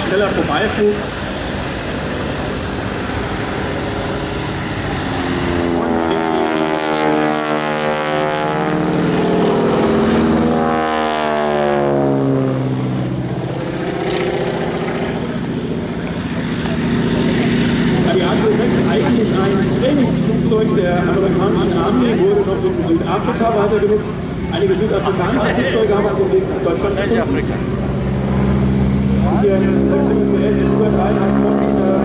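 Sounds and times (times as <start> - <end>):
propeller plane passing low: 0.0 - 32.0.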